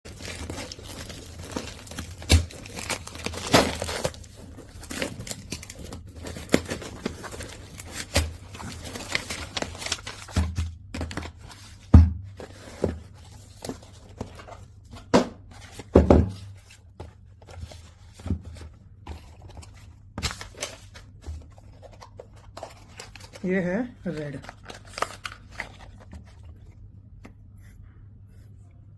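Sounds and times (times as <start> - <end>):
packaging tearing and crinkling: 0.1 - 10.4, 22.5 - 26.4.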